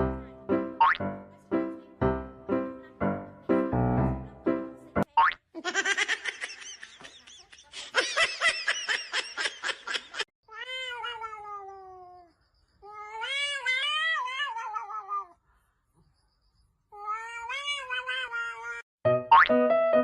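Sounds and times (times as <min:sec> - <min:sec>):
cat meowing: 0:10.5 - 0:15.4, 0:16.9 - 0:18.8.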